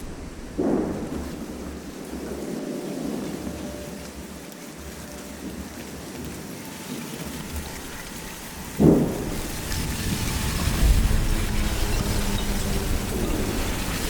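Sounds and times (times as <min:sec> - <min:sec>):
noisy pulsing rumble: 0:00.0 - 0:06.4, 0:07.3 - 0:14.0
loud boom: 0:00.3 - 0:01.9.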